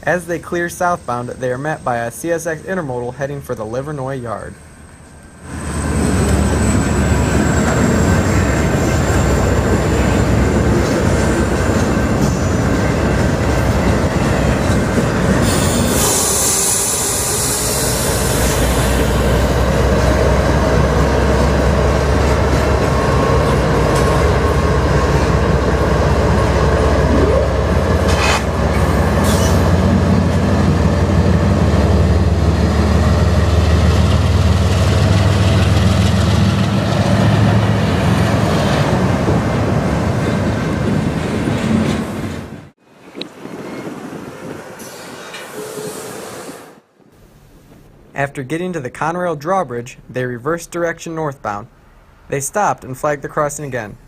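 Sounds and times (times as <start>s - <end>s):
locomotive engine drone: 0.0s - 44.6s
wheels squealing: 5.0s - 20.4s
train wheels running over rails: 5.1s - 27.0s, 27.6s - 46.8s.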